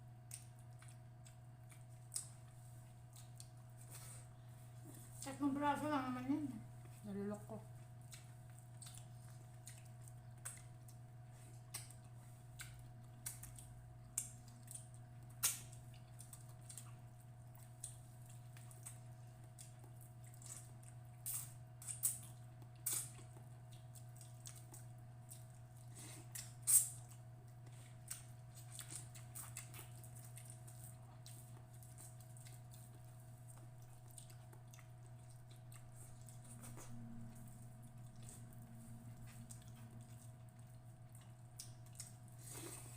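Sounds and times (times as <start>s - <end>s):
steady low hum: 0.0s - 42.9s
wet mouth chewing sounds: 0.2s - 5.3s, 7.8s - 42.9s.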